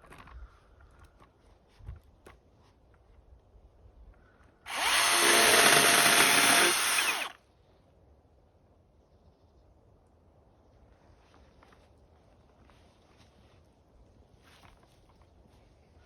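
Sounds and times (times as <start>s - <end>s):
power tool running: 4.7s - 7.4s.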